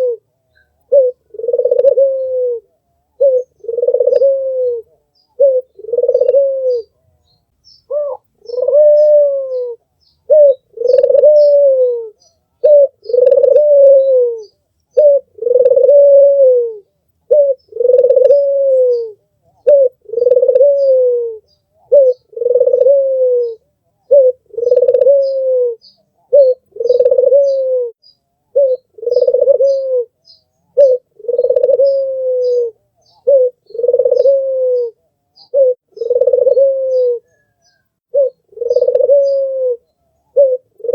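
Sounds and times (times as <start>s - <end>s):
dove cooing: 0.0s - 7.2s, 7.9s - 40.9s
small birds chirping: 0.0s - 16.2s, 16.8s - 40.9s.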